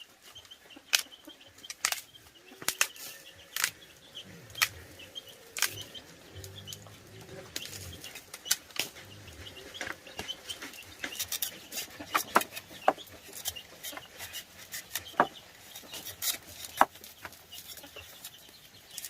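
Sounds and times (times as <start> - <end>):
faint high chirping: 0.0 - 19.0
low murmuring: 2.3 - 13.2.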